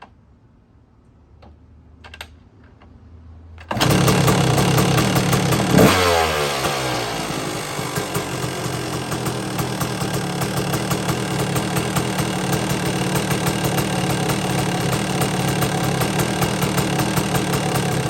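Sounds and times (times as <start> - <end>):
dirt bike engine revving and idling: 3.7 - 18.0.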